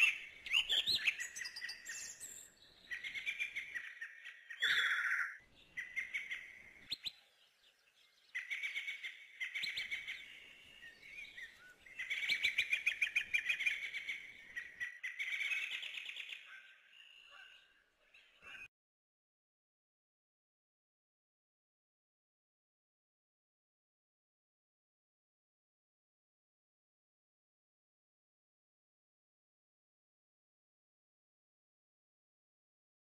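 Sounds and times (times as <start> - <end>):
small birds chirping and trilling: 0.0 - 18.7.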